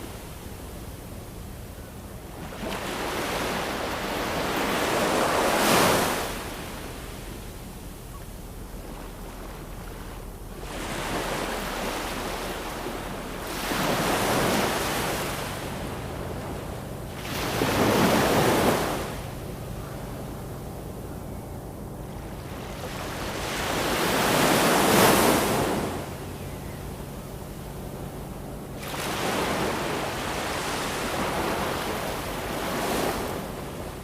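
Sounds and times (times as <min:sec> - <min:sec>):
ocean waves breaking: 0:02.2 - 0:07.9, 0:08.7 - 0:21.0, 0:22.0 - 0:26.4, 0:27.3 - 0:34.0
surf washing: 0:02.2 - 0:07.9, 0:08.7 - 0:20.4, 0:22.3 - 0:26.4, 0:28.8 - 0:34.0.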